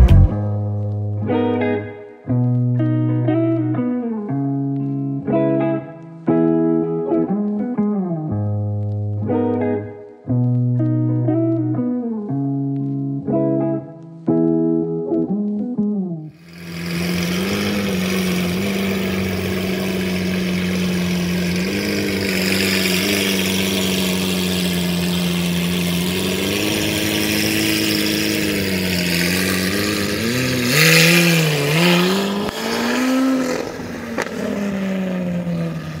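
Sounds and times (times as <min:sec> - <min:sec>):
car engine idling and revving: 0:00.0 - 0:00.4, 0:16.4 - 0:36.0.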